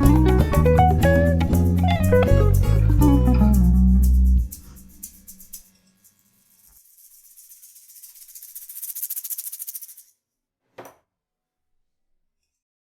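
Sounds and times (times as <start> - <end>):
percussion shaker roll: 0.0 - 10.2.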